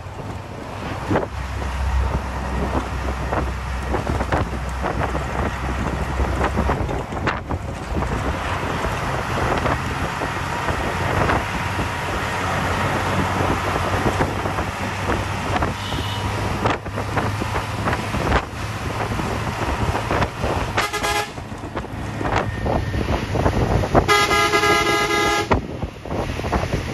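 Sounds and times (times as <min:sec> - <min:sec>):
bus engine drone: 0:00.0 - 0:26.9
road and wind noise: 0:00.0 - 0:26.9
bus horn blast: 0:15.7 - 0:16.4, 0:20.8 - 0:21.4, 0:24.0 - 0:25.6.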